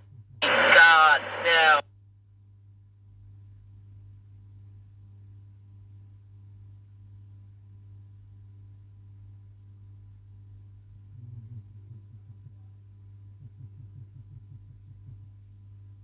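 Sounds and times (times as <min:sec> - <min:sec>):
steady low hum: 0:00.2 - 0:01.8
faint steady tones: 0:00.4 - 0:01.8.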